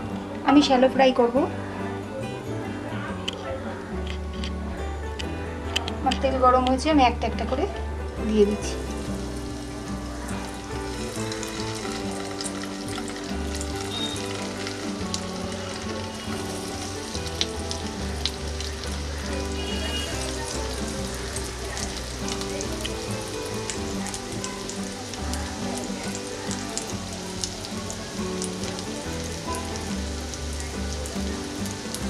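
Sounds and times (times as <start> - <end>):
patties sizzling in oil: 8.2 - 32.0.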